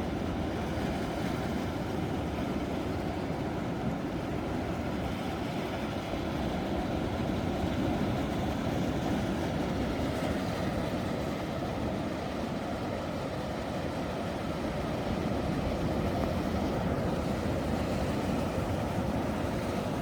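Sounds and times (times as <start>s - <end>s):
ocean surf roaring: 4.1s - 20.0s.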